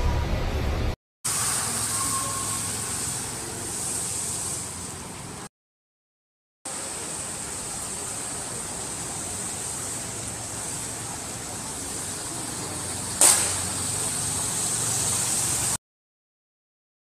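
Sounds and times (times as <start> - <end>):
heavy rain: 0.0 - 5.5, 6.7 - 15.8
sharp knock: 13.2 - 13.8.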